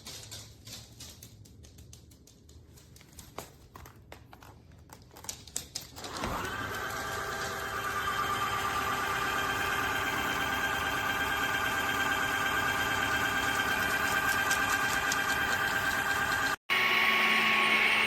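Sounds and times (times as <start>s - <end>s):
vacuum motor whining: 6.0s - 18.0s.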